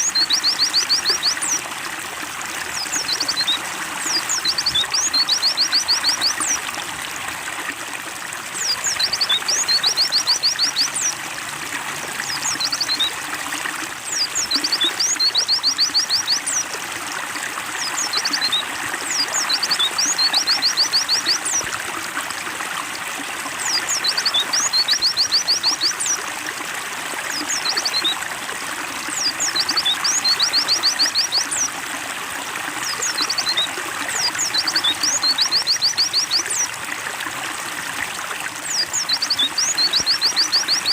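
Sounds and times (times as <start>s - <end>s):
water trickling: 0.0s - 40.9s
bird singing high twittering: 14.1s - 16.6s.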